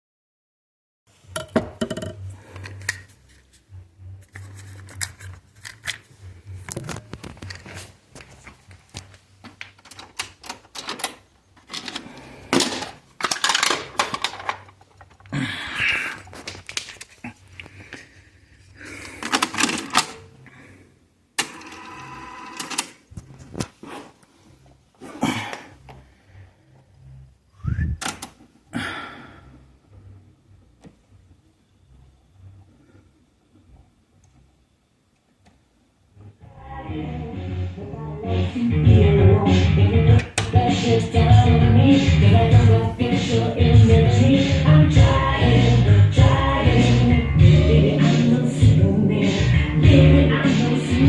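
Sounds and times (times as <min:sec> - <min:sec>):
plastic parts clicking and scraping: 0:04.2 - 0:07.9, 0:09.0 - 0:15.4, 0:16.2 - 0:17.9, 0:19.0 - 0:20.2.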